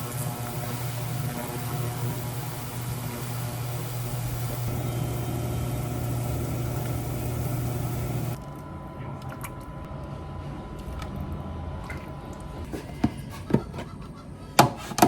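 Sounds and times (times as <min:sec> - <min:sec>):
motor running with hiss: 0:00.0 - 0:08.4.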